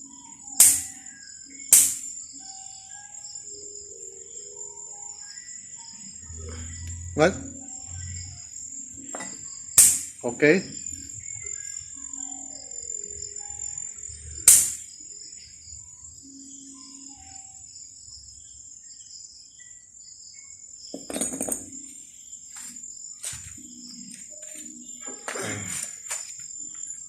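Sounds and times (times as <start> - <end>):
high-pitched insect drone: 0.0 - 27.0
hand tools knocking on metal parts: 21.0 - 21.8.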